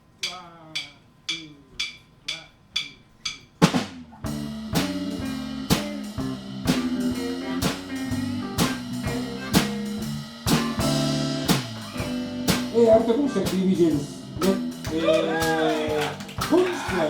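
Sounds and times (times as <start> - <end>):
live blues band playing: 3.6 - 17.0
loud drum hit: 3.6 - 17.0.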